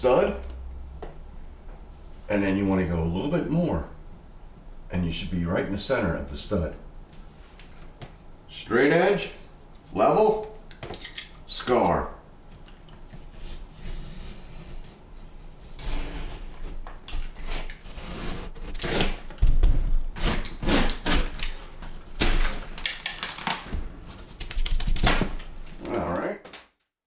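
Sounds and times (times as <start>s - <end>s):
blade rasping through drywall: 13.3s - 22.6s.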